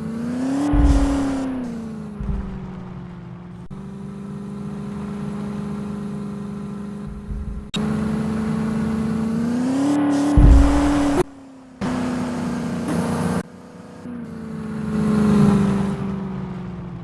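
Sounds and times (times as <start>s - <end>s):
engine revving: 0.0s - 17.0s
heavy low rumble: 0.7s - 3.8s, 7.0s - 7.8s, 10.4s - 11.2s.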